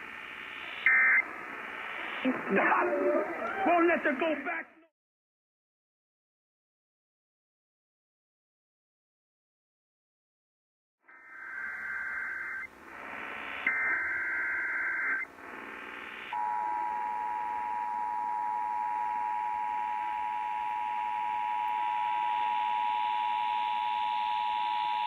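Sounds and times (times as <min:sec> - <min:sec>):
buzzing digital data bursts: 0:00.0 - 0:02.8, 0:11.2 - 0:16.4
radio hiss: 0:00.0 - 0:04.6, 0:11.1 - 0:16.4
steady warning alarm tone: 0:16.2 - 0:25.0.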